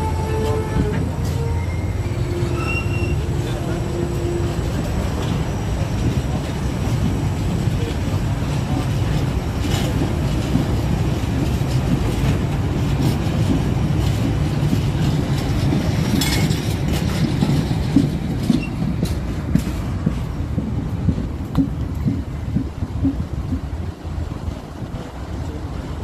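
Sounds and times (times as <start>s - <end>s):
metallic squeal: 0.0s - 5.9s
freight wagons rumbling: 0.0s - 26.0s
wheels clicking over rail joints: 4.7s - 24.6s.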